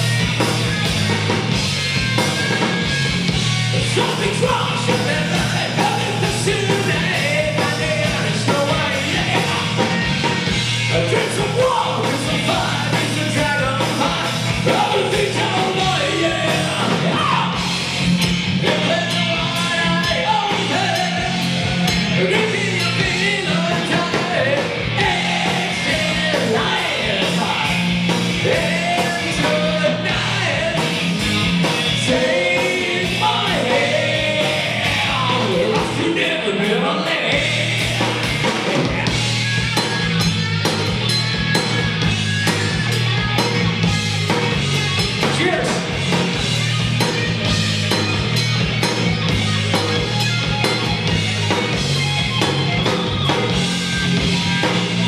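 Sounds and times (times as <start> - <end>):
rock band playing live: 0.0 - 55.0
person singing: 32.1 - 39.2.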